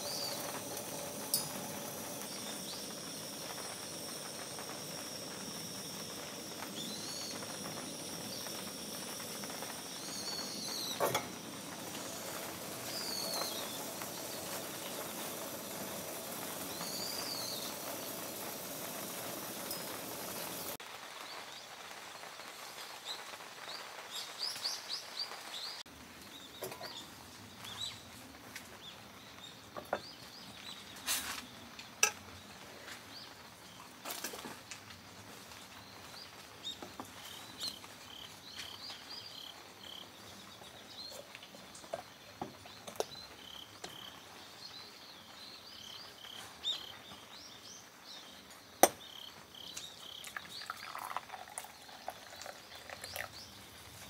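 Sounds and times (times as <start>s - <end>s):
wild birds chirping: 0.0s - 20.8s, 35.8s - 53.9s
faint outdoor hiss: 0.0s - 54.0s.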